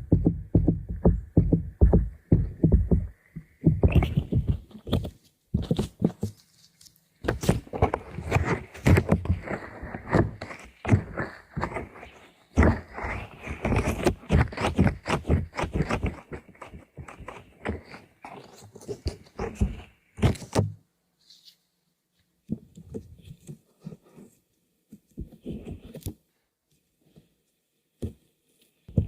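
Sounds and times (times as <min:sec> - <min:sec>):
quick tapping on objects: 0:00.1 - 0:06.5.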